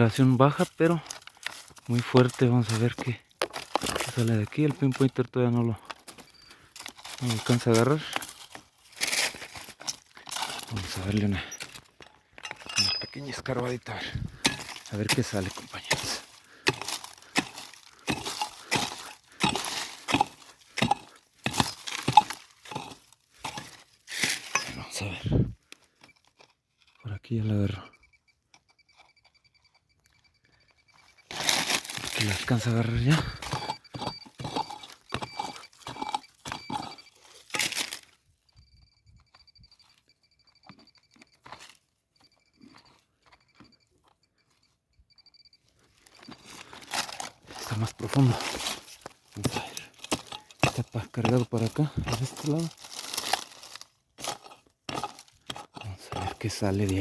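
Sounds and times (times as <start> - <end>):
metal detector beeping: 0.0 - 23.8, 24.4 - 53.6, 54.3 - 57.0
digging tool striking stony ground: 0.0 - 27.0, 30.9 - 38.2, 46.0 - 57.0
soil being dug: 0.0 - 30.3, 30.9 - 38.2, 45.7 - 57.0.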